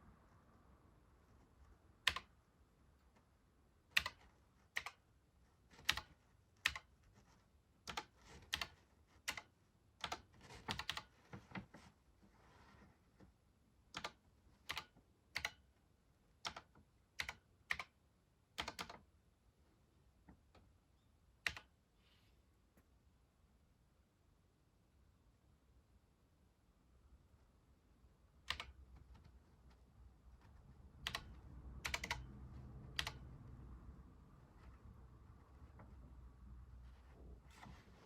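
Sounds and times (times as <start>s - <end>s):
computer keyboard key clicks: 2.1s - 2.3s, 4.0s - 4.2s, 5.8s - 6.9s, 7.9s - 11.1s, 13.9s - 15.6s, 16.4s - 17.9s, 18.6s - 19.0s, 21.4s - 21.7s, 28.5s - 28.8s, 31.0s - 32.3s, 32.9s - 33.2s.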